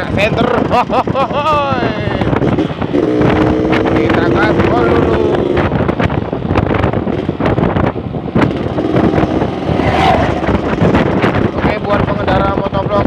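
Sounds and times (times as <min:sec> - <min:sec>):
wind buffeting microphone: 0:00.0 - 0:13.0
two-stroke motorcycle engine pulling hard: 0:02.2 - 0:06.0, 0:08.3 - 0:12.4.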